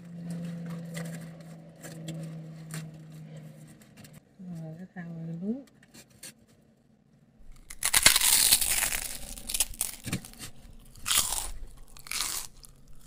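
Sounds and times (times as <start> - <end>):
person chewing crunchy sandwich: 7.4 - 13.0.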